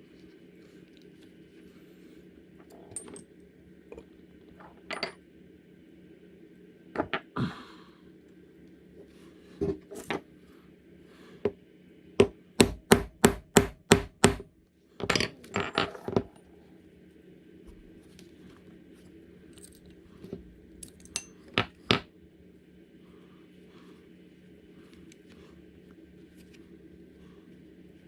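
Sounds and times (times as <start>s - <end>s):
mallet striking leather tool: 12.2s - 14.4s.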